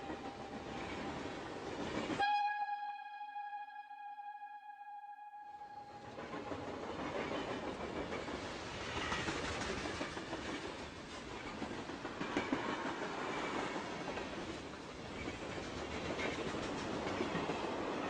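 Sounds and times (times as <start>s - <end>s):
train wheels rattling on rails: 6.2s - 18.0s.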